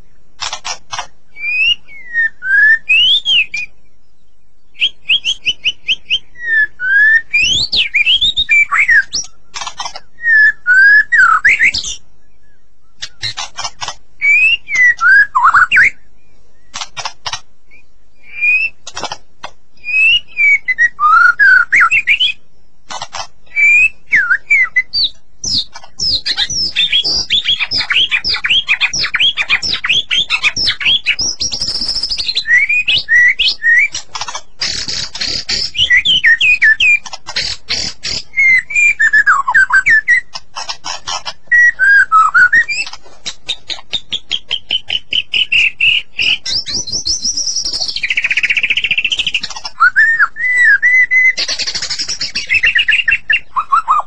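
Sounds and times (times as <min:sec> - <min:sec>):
bird sharp clicking notes: 0:00.4 - 0:01.2, 0:07.9 - 0:10.1, 0:13.0 - 0:15.9, 0:16.7 - 0:17.5, 0:18.8 - 0:19.6, 0:22.8 - 0:23.4, 0:24.5 - 0:38.6, 0:39.6 - 0:50.7, 0:51.4 - 0:53.2
bird whistled song: 0:00.9 - 0:54.0.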